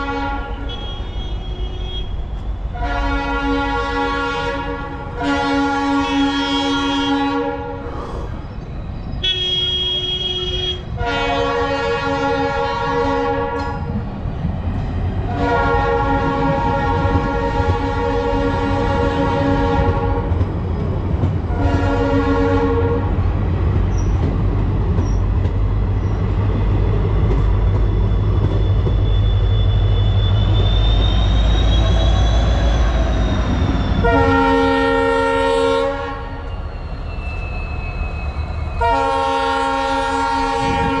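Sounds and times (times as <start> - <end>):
locomotive horn blasts: 0.0 - 7.9, 9.2 - 13.9, 15.3 - 20.4, 21.5 - 23.2, 34.0 - 36.6, 38.8 - 41.0
low rumble of wheels on track: 0.0 - 41.0.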